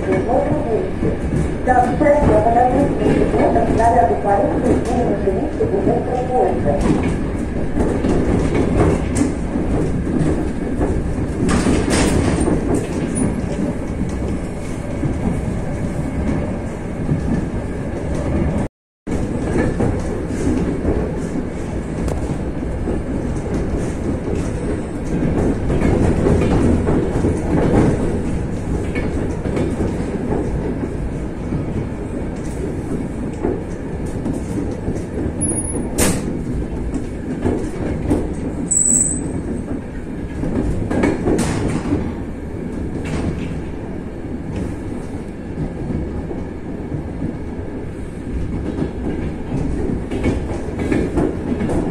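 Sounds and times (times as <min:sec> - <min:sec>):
train wheels rumbling on rails: 0:00.0 - 0:51.9.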